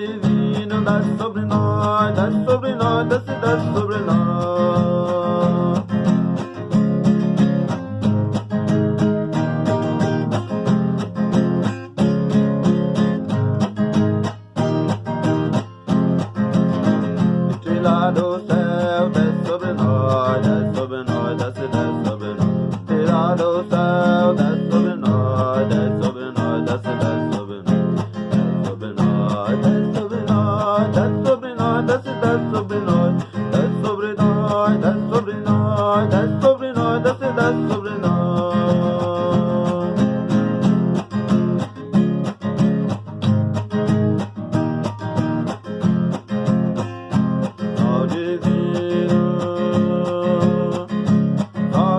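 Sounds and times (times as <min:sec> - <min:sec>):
person singing: 0:00.0 - 0:06.5, 0:17.1 - 0:40.7, 0:47.5 - 0:51.9
strummed acoustic guitar: 0:00.0 - 0:51.9.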